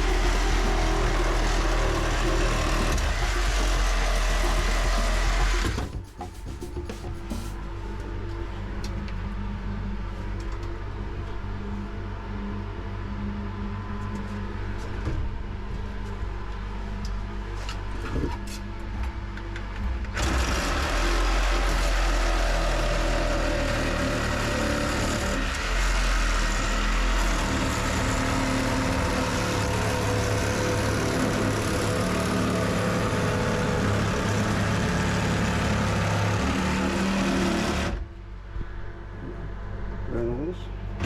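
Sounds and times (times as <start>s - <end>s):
machine motor humming: 0.0s - 7.6s, 20.2s - 38.1s.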